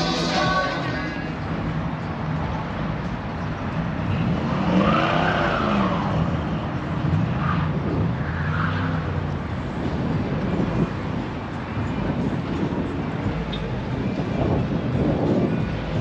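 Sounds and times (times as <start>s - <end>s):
car engine revving: 0.0s - 1.4s.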